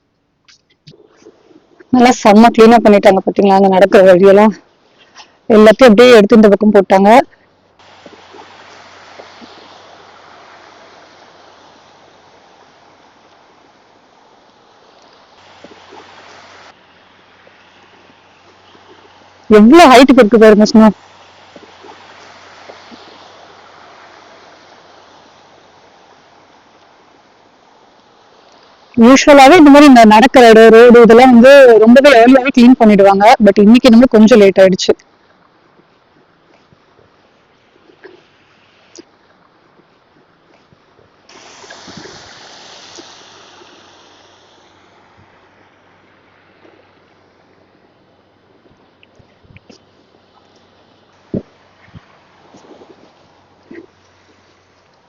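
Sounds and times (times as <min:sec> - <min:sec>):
wind hissing in snowstorm: 0:00.8 - 0:34.8, 0:35.4 - 0:55.0
gust of wind: 0:41.3 - 0:45.9, 0:51.2 - 0:53.8.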